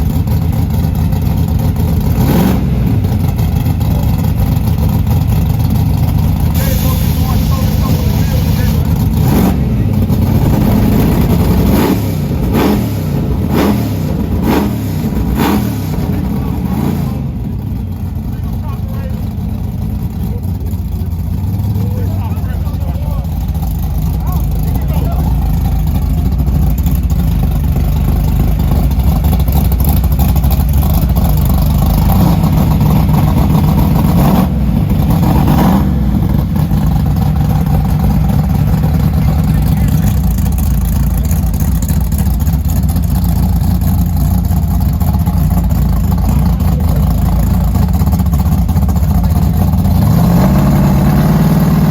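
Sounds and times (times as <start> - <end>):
car engine revving: 0.0 - 51.9.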